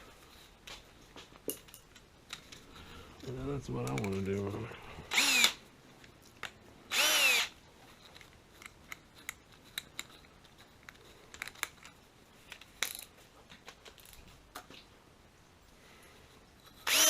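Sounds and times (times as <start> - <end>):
power drill burst: 5.1 - 5.6, 6.9 - 7.5.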